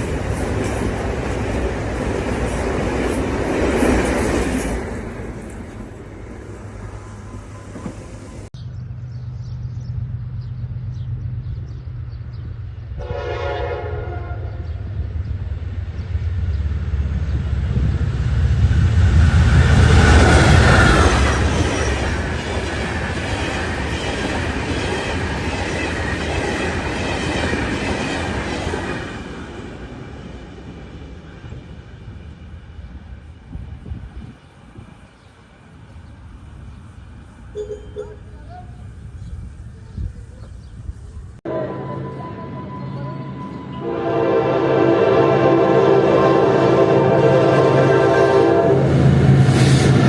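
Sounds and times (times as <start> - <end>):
locomotive engine hum: 0.0 - 25.6, 27.7 - 50.0
train horn blast: 13.0 - 14.9, 41.4 - 49.2.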